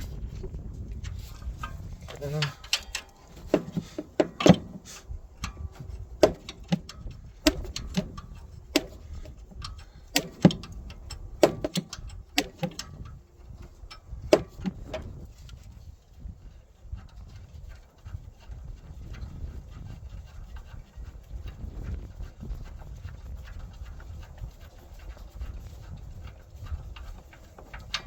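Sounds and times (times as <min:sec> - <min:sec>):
low handling noise: 0:00.0 - 0:17.6
wrench clinking against metal: 0:01.6 - 0:13.1.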